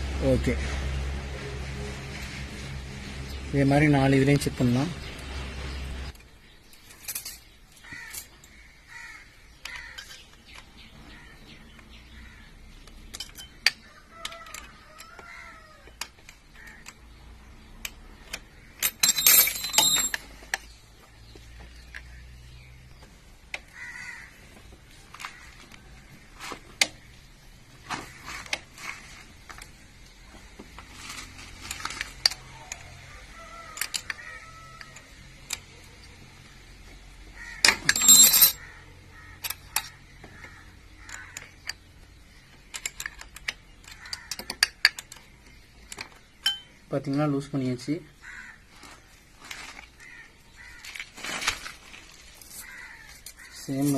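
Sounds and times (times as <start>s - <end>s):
faint birds calling: 4.2s - 53.9s
metallic clattering: 18.7s - 20.6s, 37.6s - 38.6s
metallic clinks of spanners: 18.8s - 20.4s, 37.7s - 38.7s, 46.4s - 47.2s.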